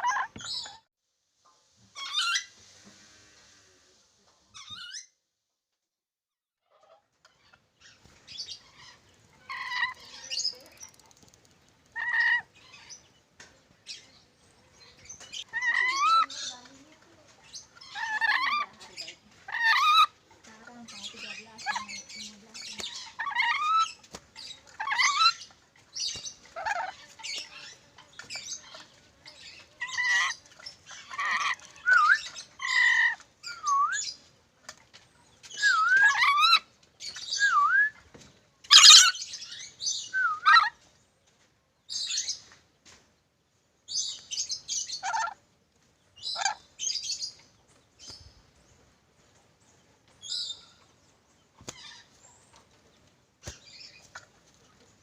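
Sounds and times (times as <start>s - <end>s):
parrot squawking and whistling: 31.1s - 34.1s, 35.6s - 36.6s, 37.3s - 38.0s, 38.7s - 39.1s.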